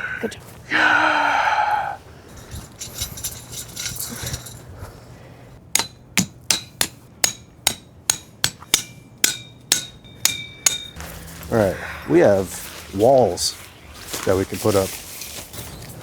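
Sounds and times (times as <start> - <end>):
faint metal clinking: 2.3 - 5.0
hammer striking metal tent stake: 5.7 - 11.1.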